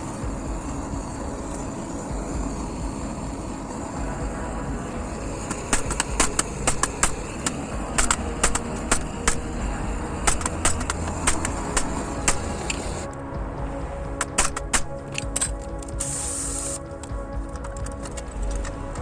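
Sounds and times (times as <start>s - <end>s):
steady low rumble: 0.0s - 19.0s
hammer striking metal grate: 5.4s - 13.0s, 14.2s - 15.6s.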